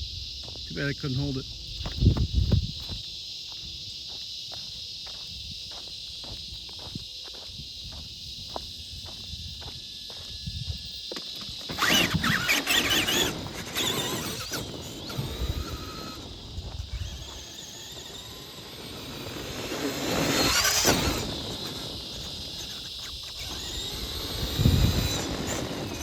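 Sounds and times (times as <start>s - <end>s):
electric motor whining: 7.9s - 26.0s.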